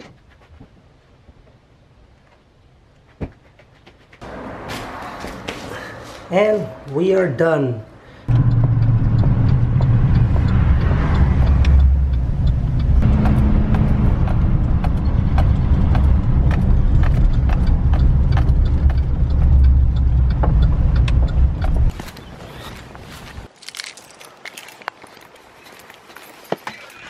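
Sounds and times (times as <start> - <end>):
car engine and road rumble: 8.2 - 24.0.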